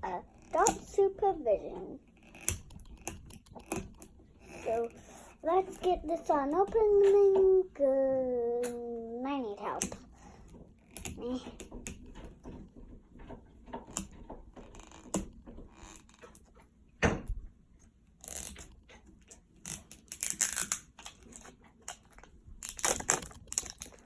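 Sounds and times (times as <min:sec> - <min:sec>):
packaging tearing and crinkling: 0:19.8 - 0:24.0.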